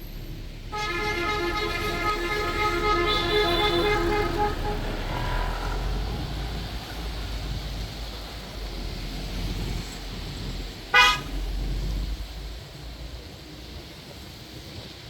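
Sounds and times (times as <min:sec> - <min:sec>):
low engine rumble: 0:00.0 - 0:15.0
steady rain: 0:00.0 - 0:15.0
traffic noise: 0:00.0 - 0:15.0
vehicle horn toot: 0:00.7 - 0:07.6, 0:10.9 - 0:11.4.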